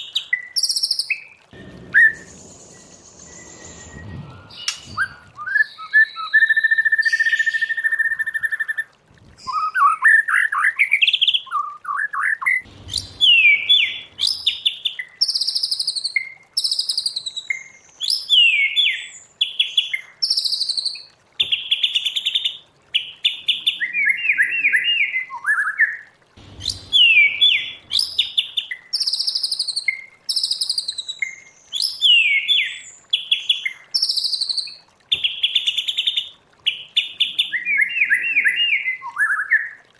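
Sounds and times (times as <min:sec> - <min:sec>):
bird whistling song: 0:00.1 - 0:08.8, 0:09.4 - 0:19.2, 0:23.6 - 0:26.0, 0:26.6 - 0:32.9, 0:37.2 - 0:39.8.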